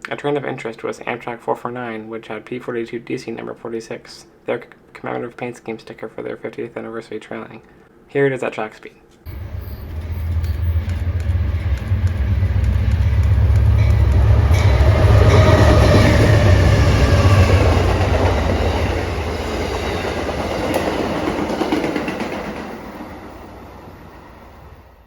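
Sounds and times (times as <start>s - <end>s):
diesel train passing: 9.3s - 25.0s.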